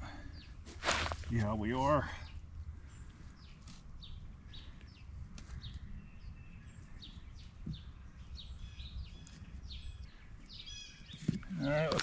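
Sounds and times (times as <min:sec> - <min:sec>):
small birds chirping: 0:00.0 - 0:12.0
low steady rumble: 0:00.6 - 0:08.9.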